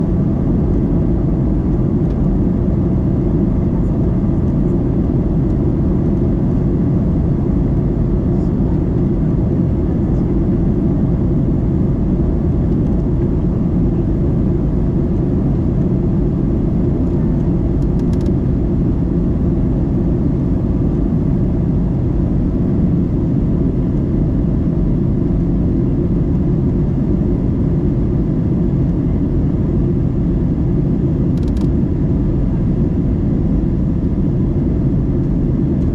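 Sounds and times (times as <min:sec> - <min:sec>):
airliner cabin engine rumble: 0:00.0 - 0:35.9.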